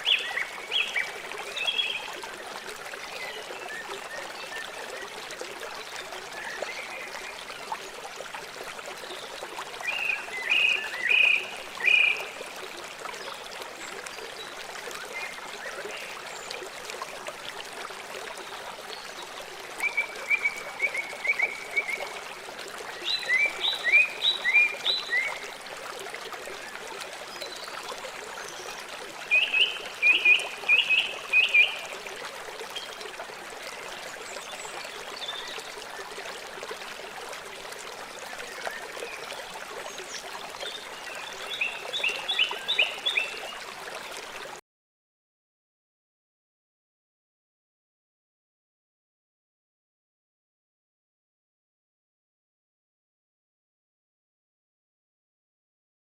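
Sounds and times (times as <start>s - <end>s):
stream trickling: 0.0s - 44.6s.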